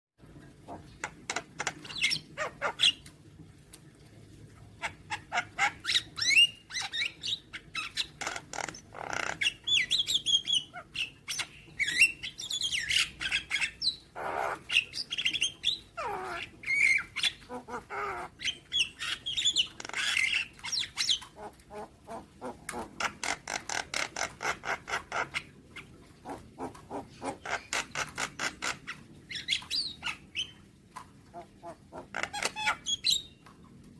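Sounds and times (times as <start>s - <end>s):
bird singing with clicks and whistles: 32.2s - 33.4s.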